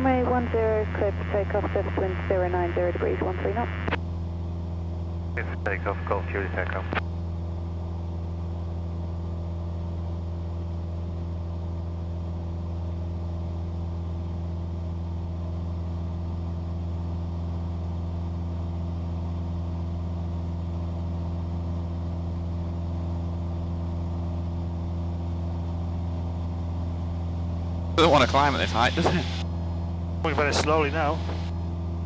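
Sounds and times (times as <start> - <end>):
propeller engine droning: 0.0 - 4.4, 5.4 - 7.6, 28.0 - 32.0.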